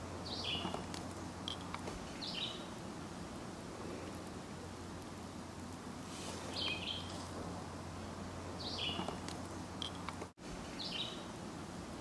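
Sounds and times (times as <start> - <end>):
birds chirping: 0.0 - 2.9, 6.3 - 7.4, 8.0 - 11.4
steady outdoor hiss: 0.0 - 12.0.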